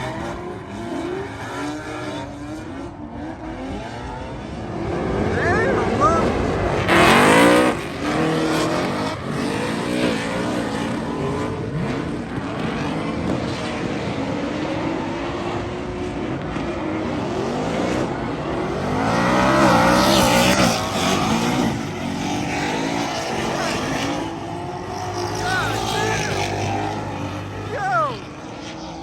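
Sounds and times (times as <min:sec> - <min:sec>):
car engines revving hard: 0:00.0 - 0:29.0.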